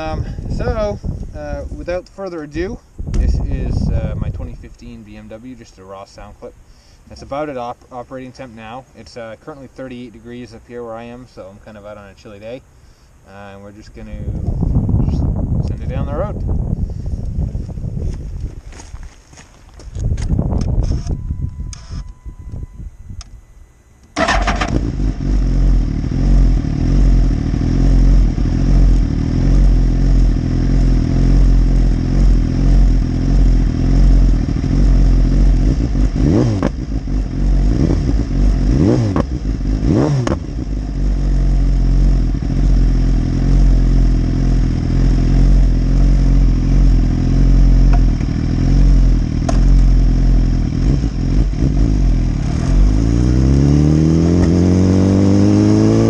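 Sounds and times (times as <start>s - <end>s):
motorcycle engine revving: 24.2s - 56.0s.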